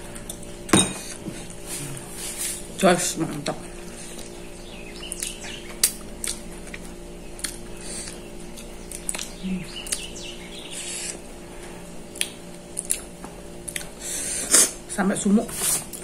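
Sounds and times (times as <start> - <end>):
person chewing food: 0.0 - 2.2, 3.8 - 11.2, 12.0 - 14.8
low hum: 0.0 - 15.4.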